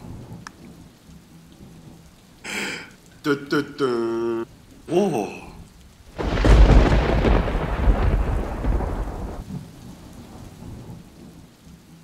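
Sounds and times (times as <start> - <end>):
rain: 0.0 - 12.0
thunderclap rumbling: 6.1 - 11.5.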